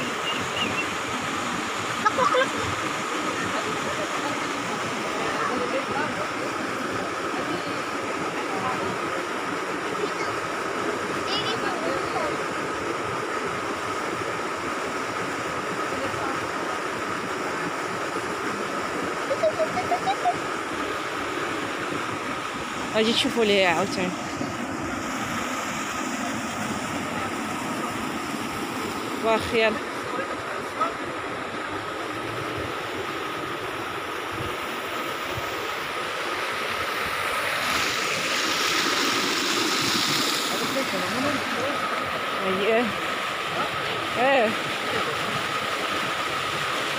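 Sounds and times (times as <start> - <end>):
rush of flowing water: 0.0 - 46.9.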